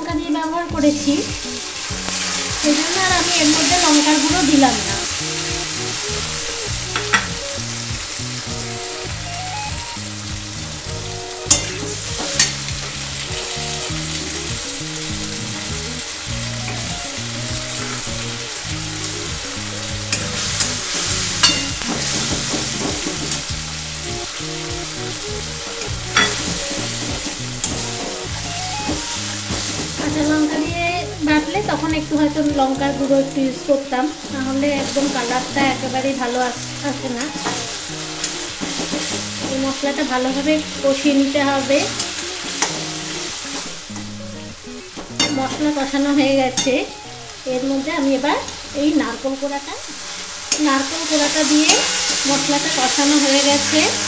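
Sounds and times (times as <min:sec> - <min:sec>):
spice paste sizzling in hot oil: 0:00.2 - 0:54.0
metal spatula scraping pan: 0:51.5 - 0:54.0.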